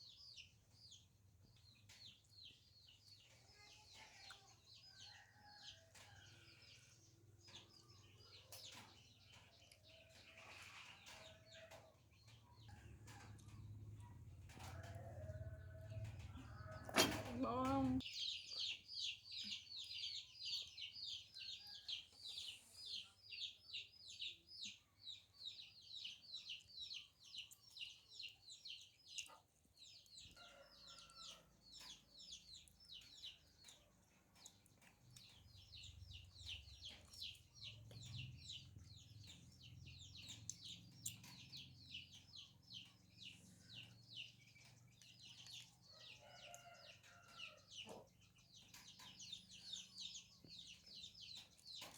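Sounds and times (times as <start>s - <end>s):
chicks peeping: 14.6s - 51.9s.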